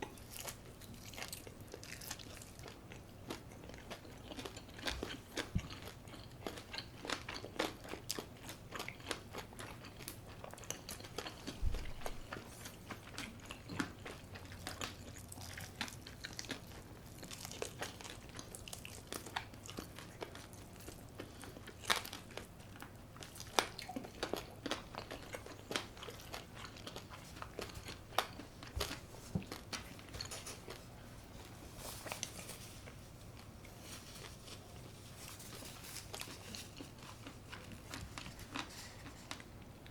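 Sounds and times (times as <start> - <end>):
quiet chewing: 0.0 - 39.9.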